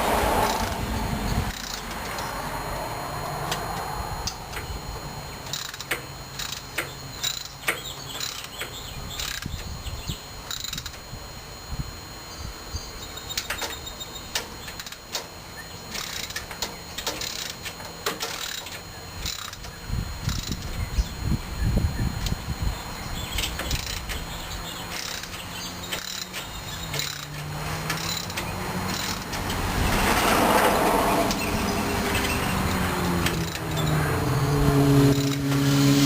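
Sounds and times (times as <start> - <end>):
hand tools clicking on metal: 24.9 - 29.4.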